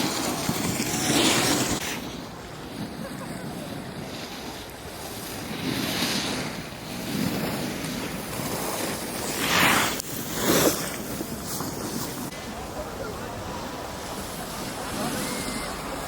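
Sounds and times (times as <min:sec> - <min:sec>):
edges scraping on packed snow: 0:00.0 - 0:12.4.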